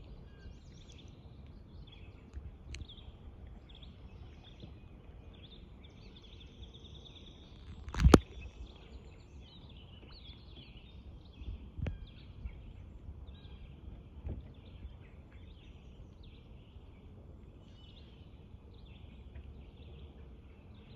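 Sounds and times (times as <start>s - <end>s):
small birds chirping: 0.0s - 13.8s
low outdoor rumble: 0.0s - 20.9s.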